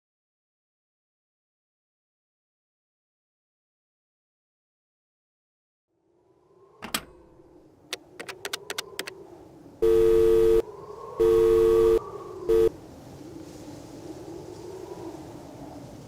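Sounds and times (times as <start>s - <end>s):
sharp clicks: 7.9s - 9.2s
telephone busy tone: 9.8s - 10.6s, 11.2s - 12.7s.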